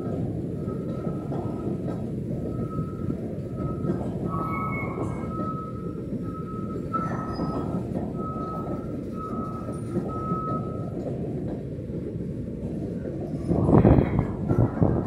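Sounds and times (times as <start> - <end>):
train wheels rumbling on rails: 0.0 - 15.0
high wheel squeal: 3.6 - 10.9.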